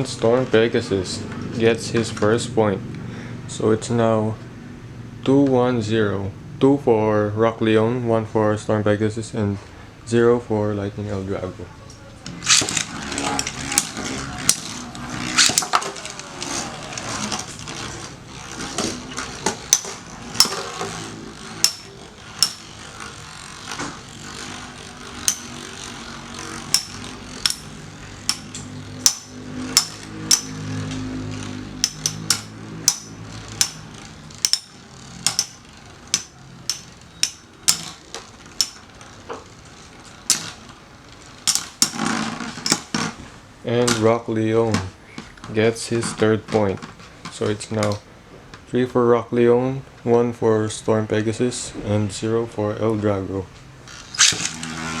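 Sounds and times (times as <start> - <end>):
metallic clacks of colliding tops: 12.3 - 17.9, 18.5 - 22.8, 23.6 - 39.1, 41.4 - 43.0
spinning tops whirring: 12.3 - 43.5, 53.8 - 55.0.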